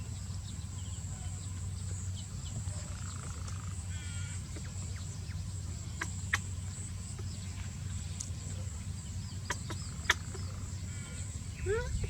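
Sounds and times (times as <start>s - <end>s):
crickets droning: 0.0s - 12.0s.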